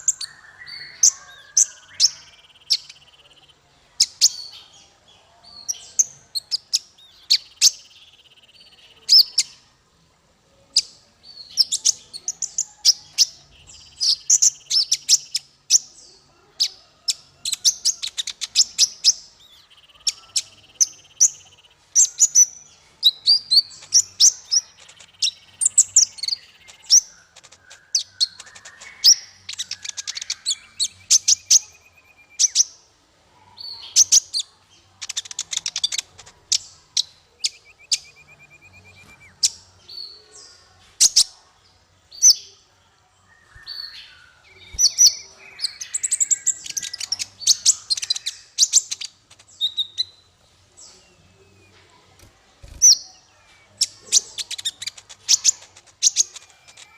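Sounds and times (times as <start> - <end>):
small songbirds chirping: 0.0 - 56.9.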